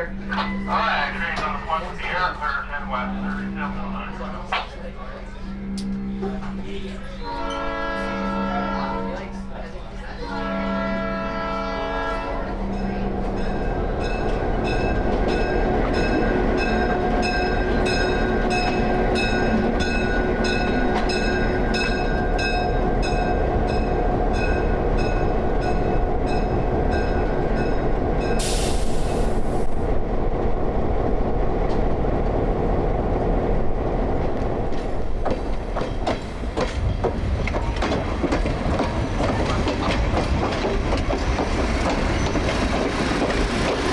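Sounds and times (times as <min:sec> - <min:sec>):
train horn: 0:02.8 - 0:09.5, 0:10.2 - 0:13.2
air hiss: 0:28.4 - 0:29.8
locomotive running: 0:31.2 - 0:43.9
wheels clicking over rail joints: 0:34.7 - 0:43.9.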